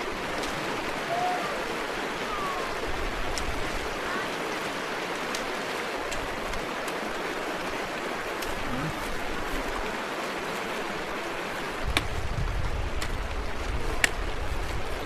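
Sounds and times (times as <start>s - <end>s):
stream rushing over rocks: 0.0s - 15.0s
distant voices calling: 1.0s - 3.0s.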